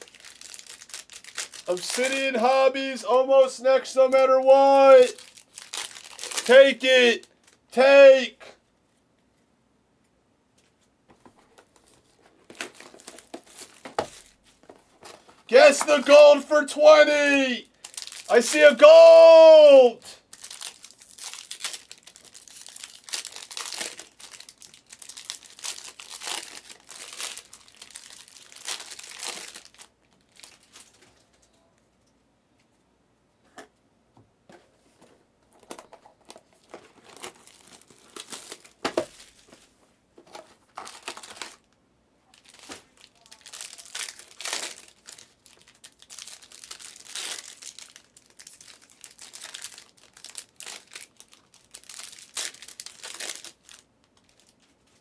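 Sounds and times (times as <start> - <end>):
foil wrappers crinkling and tearing: 0.0 - 2.3, 5.0 - 7.6, 11.6 - 14.4, 17.7 - 18.6, 20.2 - 31.3, 35.6 - 39.6, 40.7 - 41.7, 42.3 - 55.0.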